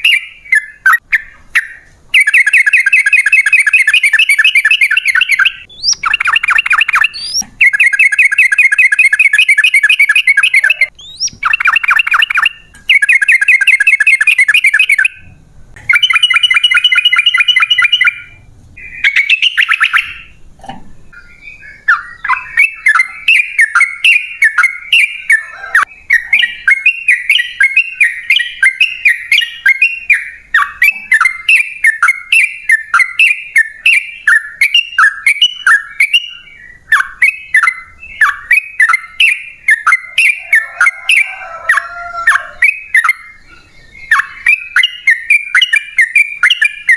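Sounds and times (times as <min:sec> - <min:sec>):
bird chattering notes: 0:00.0 - 0:20.4
bird trilling: 0:00.0 - 0:20.4, 0:21.1 - 0:46.9.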